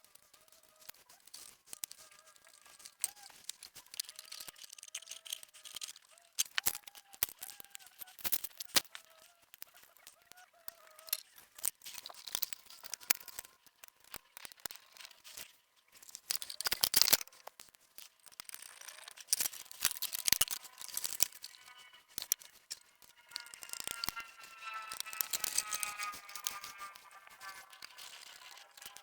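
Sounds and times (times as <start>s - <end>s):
plastic and metal parts clicking: 0.4s - 24.2s, 25.0s - 29.0s
loud scratchy burst: 20.3s - 29.0s.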